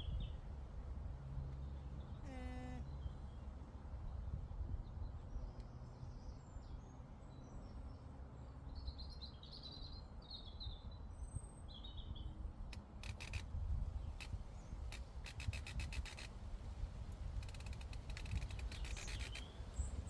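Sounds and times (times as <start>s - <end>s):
sharp clicks: 12.8s - 13.5s, 14.2s - 16.4s, 17.4s - 19.5s
bird chirping rapidly: 17.4s - 20.0s.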